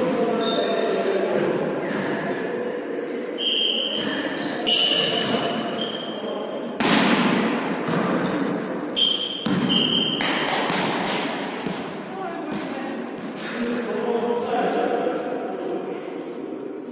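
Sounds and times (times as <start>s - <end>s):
shoe squeaks: 0.4s - 0.9s, 3.4s - 6.4s, 8.0s - 10.3s
volleyball hits ringing in hall: 3.5s - 13.8s
ball bouncing on court floor: 6.8s - 13.4s.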